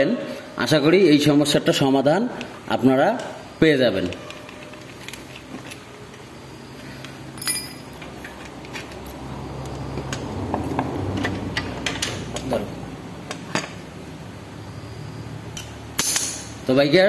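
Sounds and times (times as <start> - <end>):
metallic clicks and clinks: 7.0 - 10.3.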